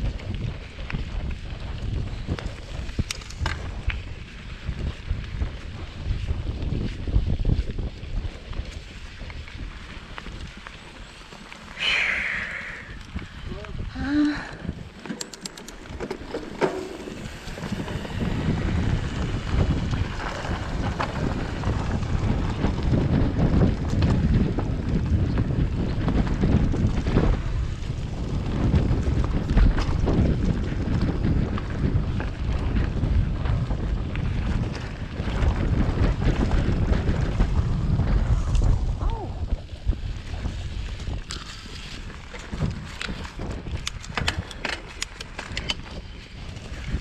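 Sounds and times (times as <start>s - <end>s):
wind buffeting microphone: 0.0s - 47.0s
sharp clicks and rattles: 14.4s - 18.4s, 42.4s - 46.1s
bike knocks and rattles: 14.7s - 38.8s, 40.2s - 47.0s.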